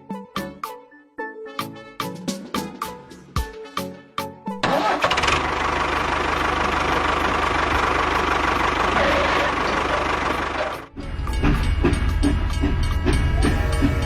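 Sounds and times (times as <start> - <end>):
small tractor engine running: 4.6 - 14.0.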